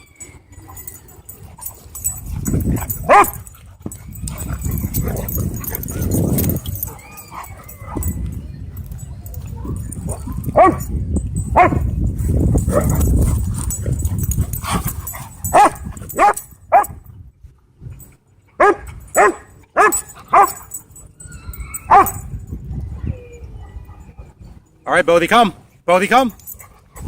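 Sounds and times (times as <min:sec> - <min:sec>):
dog barking: 0:03.0 - 0:03.4, 0:10.6 - 0:10.8, 0:15.5 - 0:17.0, 0:18.6 - 0:20.7, 0:21.9 - 0:22.2.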